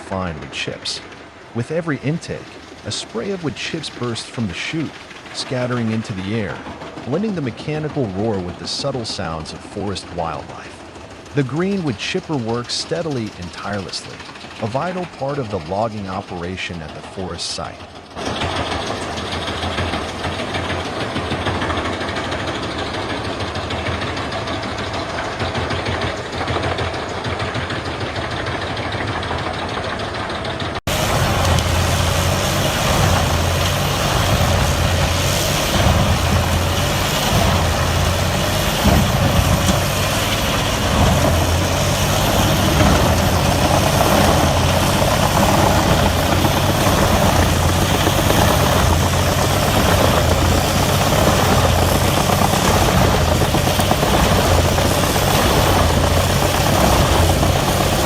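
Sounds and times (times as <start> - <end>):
heavy machine drone: 0.0 - 58.0
wood chipper shredding logs: 0.0 - 58.0.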